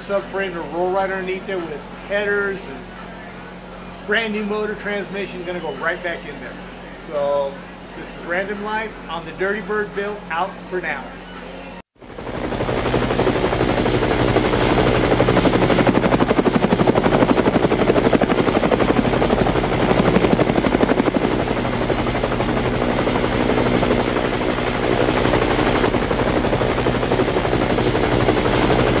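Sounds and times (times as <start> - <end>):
loud machine pulsing: 12.0 - 29.0.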